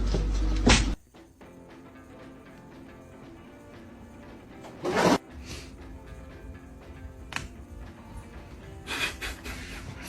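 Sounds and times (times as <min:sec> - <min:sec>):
quiet background music: 0:00.0 - 0:10.0.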